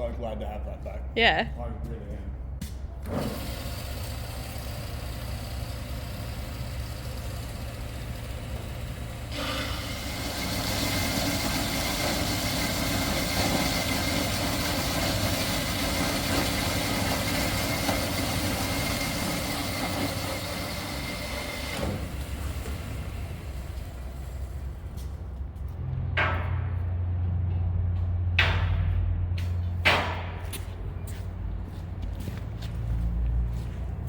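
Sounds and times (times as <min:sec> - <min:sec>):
machine cutting steel bar: 0:03.0 - 0:25.0
machine humming: 0:03.0 - 0:25.1.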